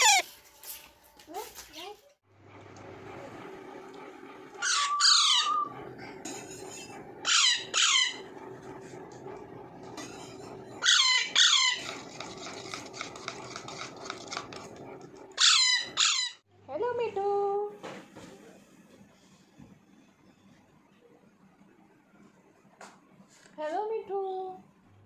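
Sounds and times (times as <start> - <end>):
parakeet harsh calls: 0.0 - 0.2, 4.6 - 5.6, 7.2 - 8.3, 10.8 - 11.8, 15.4 - 16.4
low background hum: 0.0 - 25.0.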